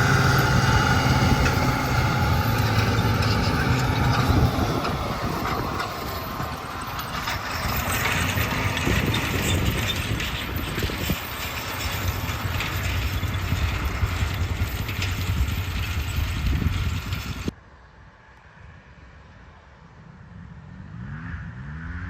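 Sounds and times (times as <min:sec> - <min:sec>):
tractor diesel engine rumbling: 0:00.0 - 0:17.5.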